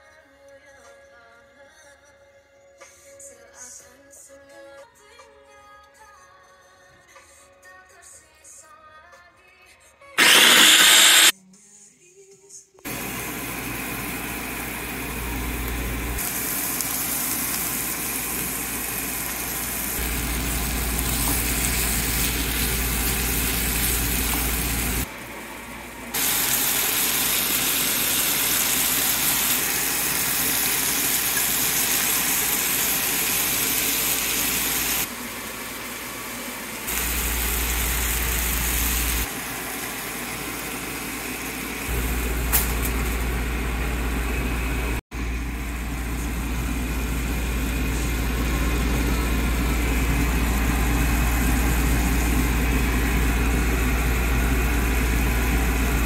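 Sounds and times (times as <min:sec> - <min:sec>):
food sizzling in a pan: 0:10.2 - 0:11.3, 0:12.9 - 0:25.1, 0:26.2 - 0:43.4.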